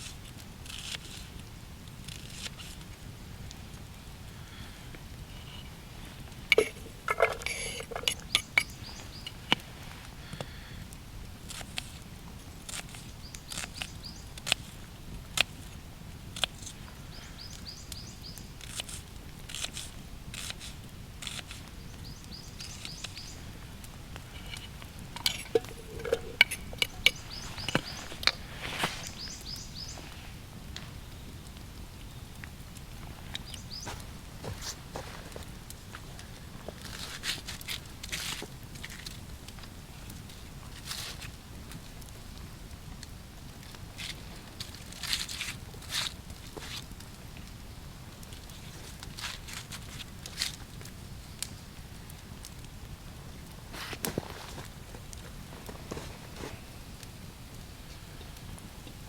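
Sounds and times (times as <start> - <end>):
short squeaky scrapes: 6.5 - 9.4, 24.3 - 30.2
crunching: 22.3 - 30.1.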